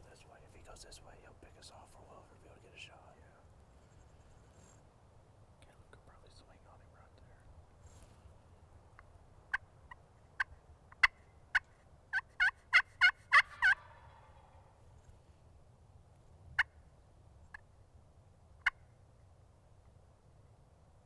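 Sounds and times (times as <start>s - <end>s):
turkey clucking: 9.5s - 14.7s
turkey yelping: 11.0s - 14.7s.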